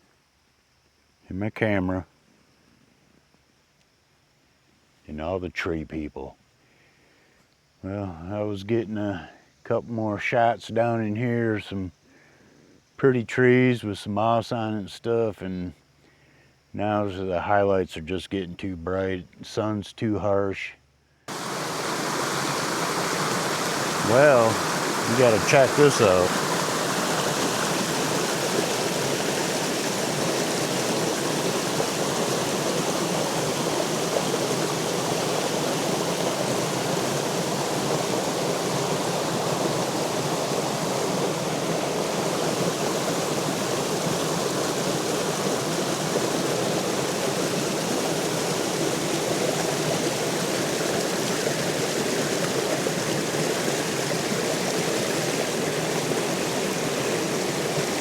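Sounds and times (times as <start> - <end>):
small waterfall splashing: 21.3 - 58.0.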